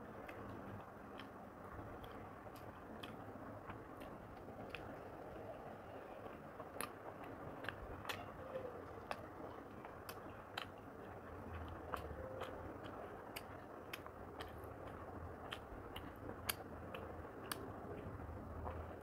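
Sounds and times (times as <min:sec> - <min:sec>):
faint low hum: 0:00.0 - 0:19.0
person chewing food: 0:00.2 - 0:05.5, 0:06.2 - 0:19.0.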